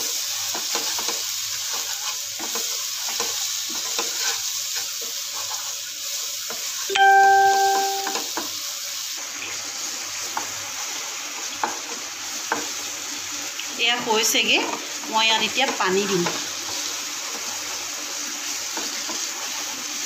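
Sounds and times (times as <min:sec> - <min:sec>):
paste sizzling in a pan: 0:00.0 - 0:20.0
wooden spatula scraping a pan: 0:00.3 - 0:06.8
bell-like tone: 0:06.9 - 0:08.3.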